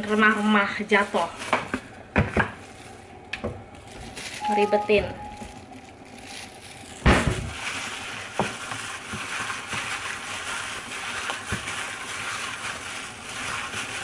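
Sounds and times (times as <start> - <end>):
food sizzling in a pan: 6.6 - 14.0.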